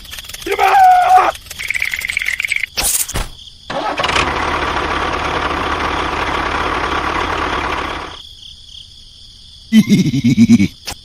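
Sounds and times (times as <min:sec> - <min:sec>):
engine starting and running: 0:03.7 - 0:08.2.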